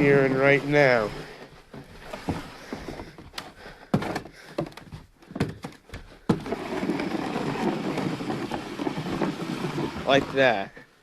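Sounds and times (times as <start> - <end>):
snow shovel knocking and scraping: 6.2 - 10.8.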